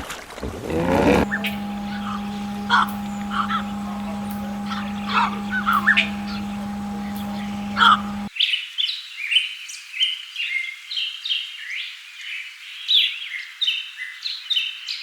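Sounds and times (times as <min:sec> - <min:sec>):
small birds chirping: 0:01.2 - 0:08.3.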